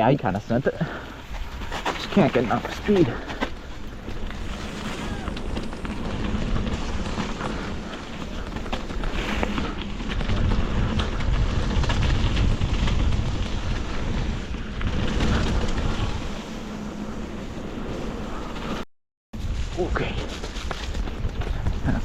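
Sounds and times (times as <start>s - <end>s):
bike rattles and knocks: 0.8s - 17.4s
wind buffeting microphone: 1.1s - 18.6s.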